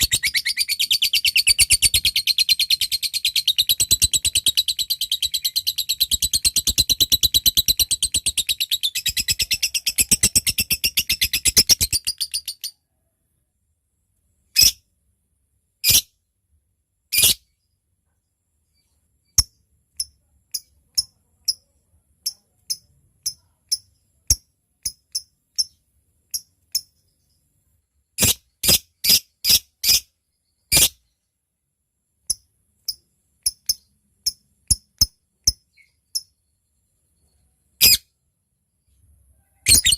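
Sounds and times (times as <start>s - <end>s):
lovebird chattering trill: 0.0s - 12.7s
bird ticking calls: 19.4s - 27.0s.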